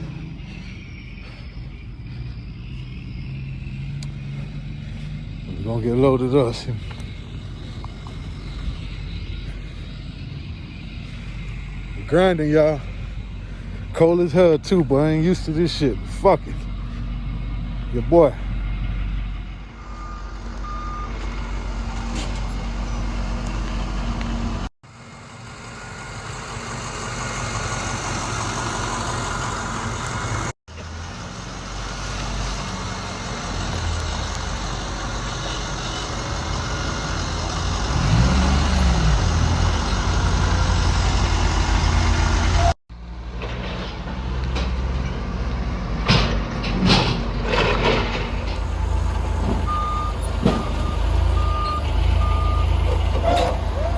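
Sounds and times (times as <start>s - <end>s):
truck engine running: 0.0s - 53.9s.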